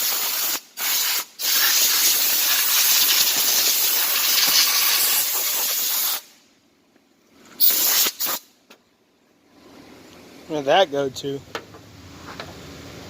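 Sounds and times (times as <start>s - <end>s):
air blow gun hissing: 0.0s - 6.4s, 7.6s - 8.5s.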